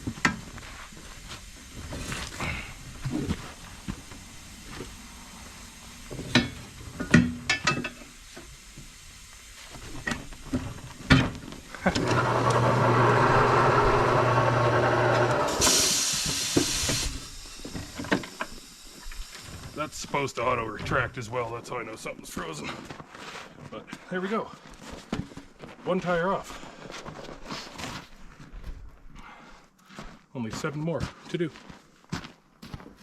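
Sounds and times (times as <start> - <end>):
compressed air hiss: 0.2 - 11.0, 15.1 - 20.2
metal clanks and knocks: 6.1 - 8.1
turntable motor humming: 11.7 - 19.8.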